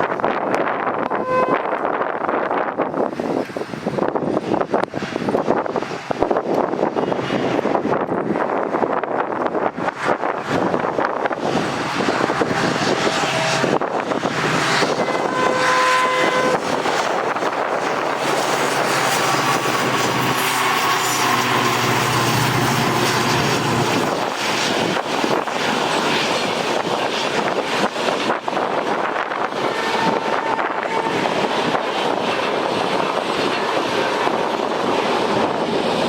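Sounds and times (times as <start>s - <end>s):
diesel train passing: 0.1s - 36.0s
train horn tone: 0.9s - 2.0s, 12.4s - 24.1s, 29.5s - 31.5s.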